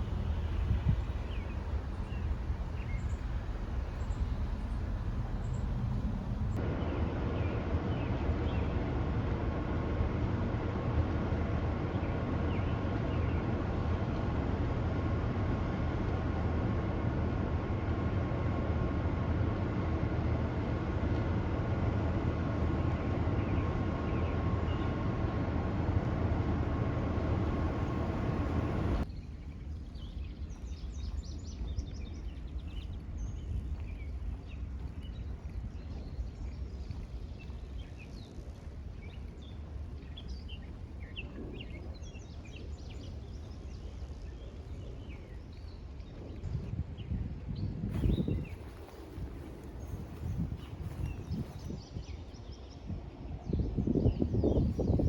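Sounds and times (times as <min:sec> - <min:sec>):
birds chirping: 0:00.0 - 0:06.6
loud steady rumbling with tones: 0:00.0 - 0:52.3.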